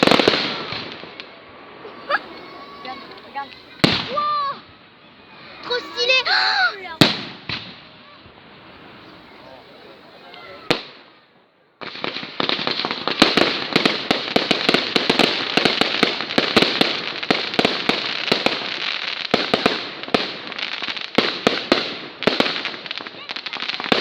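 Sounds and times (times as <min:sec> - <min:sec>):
fireworks crackling and banging: 0:00.0 - 0:11.2, 0:11.8 - 0:24.0.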